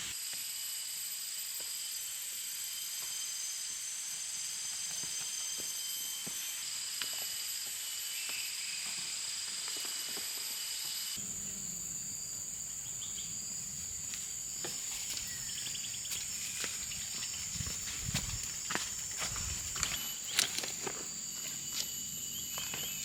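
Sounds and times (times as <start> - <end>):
insects shrill chorus: 1.8 - 23.0.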